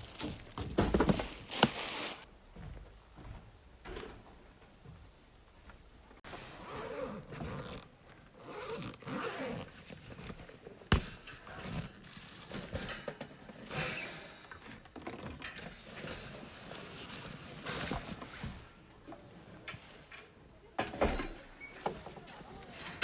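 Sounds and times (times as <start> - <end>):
rustling and scraping handling: 0.0 - 2.3, 6.2 - 14.0, 14.6 - 20.4.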